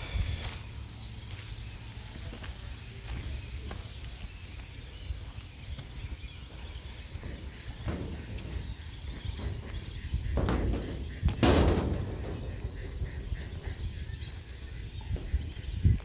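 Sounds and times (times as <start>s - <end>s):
faint bird calls: 0.0s - 16.0s
steady low rumble: 4.4s - 16.0s.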